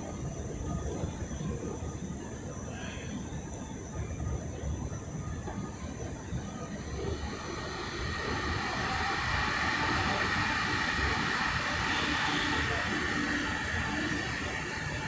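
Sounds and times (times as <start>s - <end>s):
metro train rumbling: 5.4s - 15.0s.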